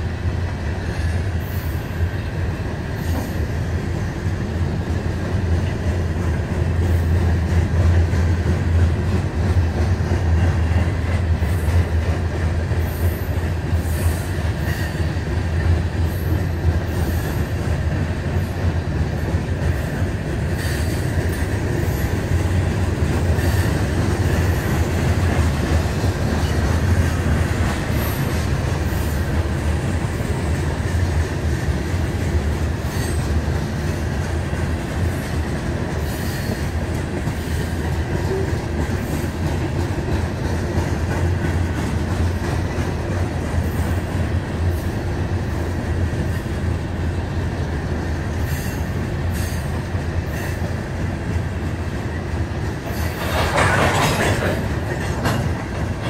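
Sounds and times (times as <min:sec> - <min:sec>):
steel wheels rumbling on rail: 0:00.0 - 0:56.0
faint high wheel squeal: 0:32.9 - 0:33.2.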